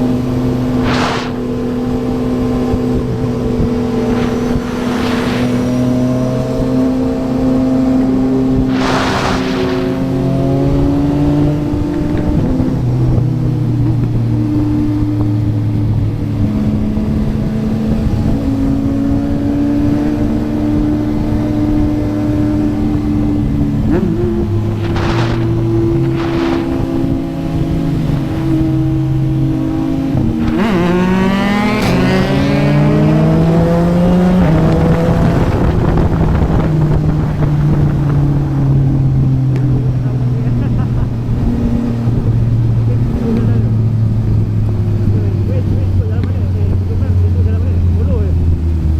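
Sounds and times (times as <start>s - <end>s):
short whooshes: 0.7s - 2.1s, 3.3s - 6.7s, 8.6s - 10.9s, 24.7s - 27.5s
motorcycle engine running: 20.2s - 33.2s.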